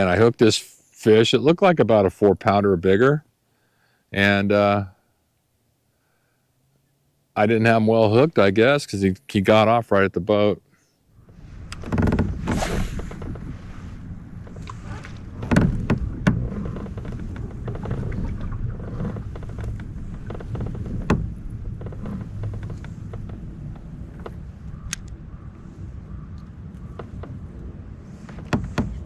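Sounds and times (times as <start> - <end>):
low rumble: 11.1 - 28.3
knocks against a kayak: 14.6 - 17.9, 19.5 - 21.3, 28.3 - 29.0.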